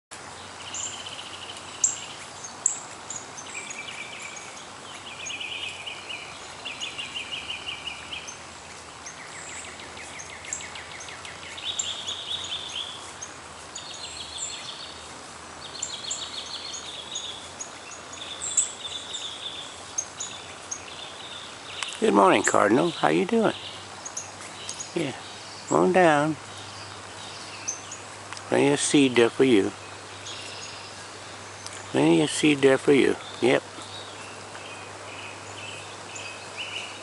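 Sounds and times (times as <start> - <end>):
steady outdoor hiss: 0.1 - 37.0
songbird trilled songs: 0.2 - 37.0
songbird sharp chips: 21.7 - 25.1.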